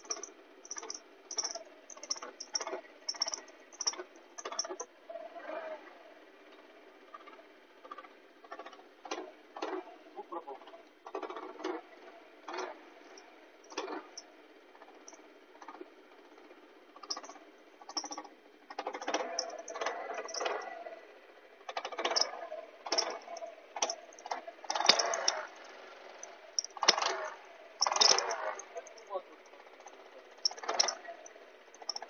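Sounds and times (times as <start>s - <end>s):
sharp clicks: 0.0s - 4.8s, 17.0s - 20.7s, 22.9s - 29.1s, 29.8s - 32.0s
scooter engine squeaking: 0.0s - 5.6s, 9.7s - 32.0s
engine hum: 0.0s - 32.0s.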